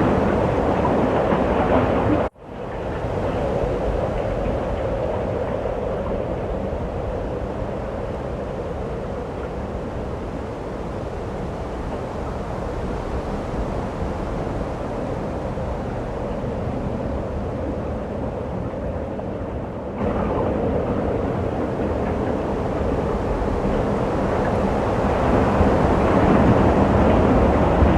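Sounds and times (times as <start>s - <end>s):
snowstorm wind rushing: 20.0s - 27.9s.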